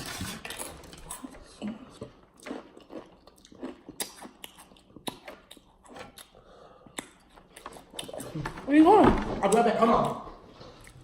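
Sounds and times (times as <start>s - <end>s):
person chewing crunchy chips: 0.0s - 8.4s.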